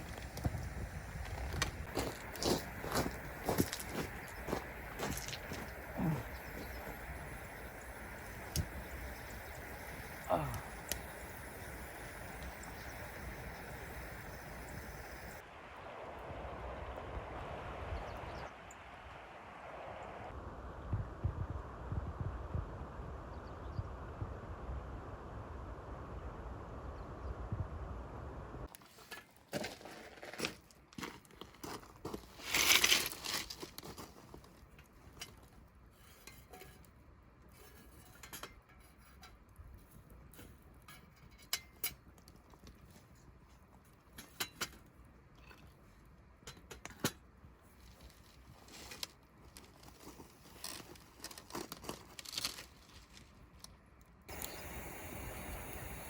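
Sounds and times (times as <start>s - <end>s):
packaging rustling and tearing: 48.1s - 53.6s.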